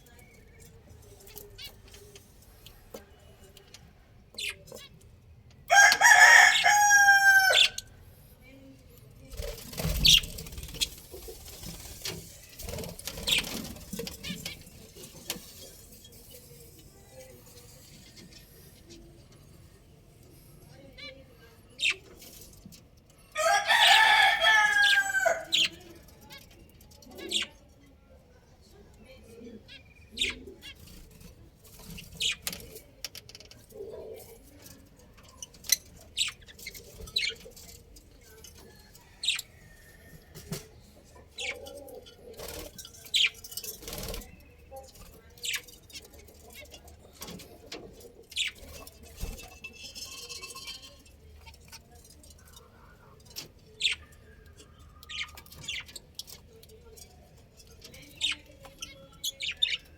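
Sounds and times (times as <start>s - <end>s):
rooster crowing: 5.7s - 7.8s, 23.4s - 25.5s
bird chirps and clicks: 48.2s - 59.9s.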